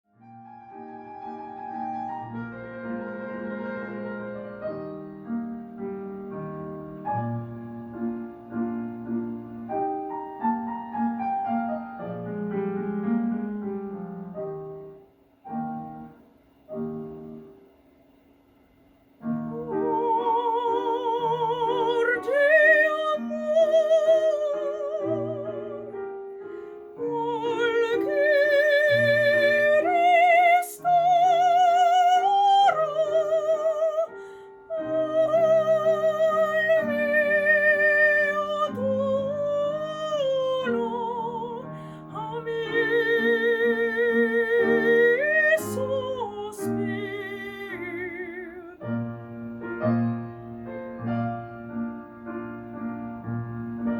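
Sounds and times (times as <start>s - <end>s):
piano accompaniment: 0.0s - 53.9s
soprano operatic singing: 19.4s - 49.1s.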